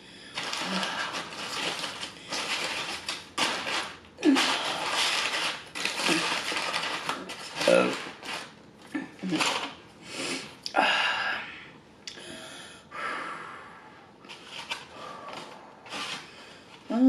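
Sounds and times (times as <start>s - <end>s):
loud breaths through the nose: 10.0s - 10.6s.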